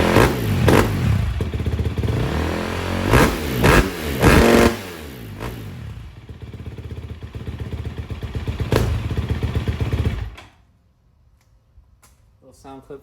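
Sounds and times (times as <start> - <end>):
dirt bike engine idling: 0.0 - 10.4.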